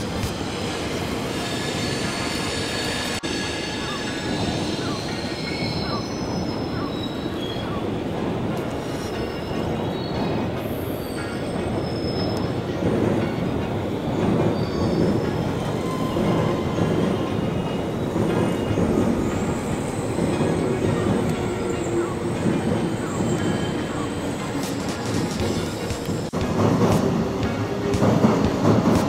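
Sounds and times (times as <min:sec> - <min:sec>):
train wheels rumbling on track: 0:00.0 - 0:29.0.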